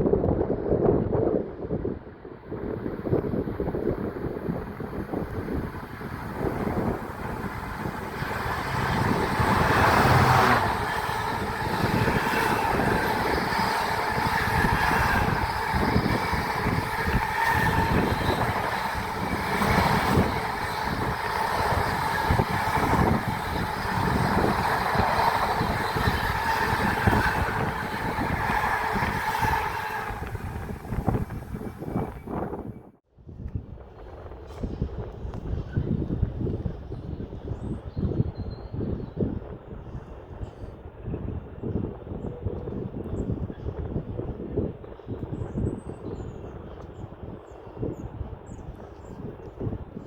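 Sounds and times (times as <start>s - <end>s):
freight train rumbling past: 2.4s - 32.8s
wheels knocking on track: 5.3s - 32.3s.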